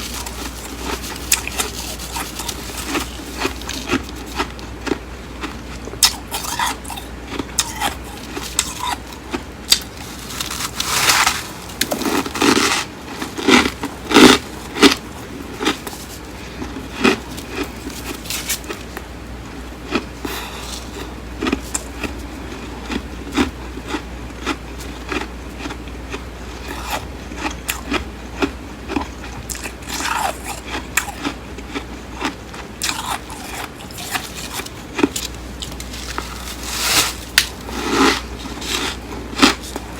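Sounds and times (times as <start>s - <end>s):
crunching frost: 0.0s - 19.0s, 32.8s - 39.9s.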